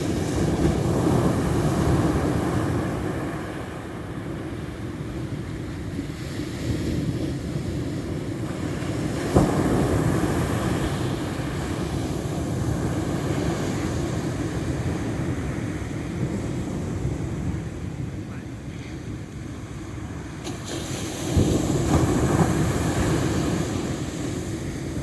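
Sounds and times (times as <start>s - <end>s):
roar of surf: 0.0s - 25.0s
wave crashing: 8.3s - 25.0s.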